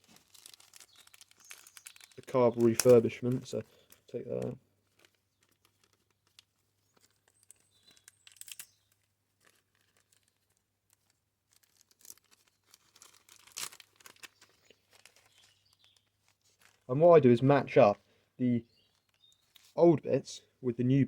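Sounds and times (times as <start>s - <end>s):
plastic packet crinkling and tearing: 0.0s - 16.9s, 18.7s - 19.8s
small parts clicking: 3.9s - 10.3s.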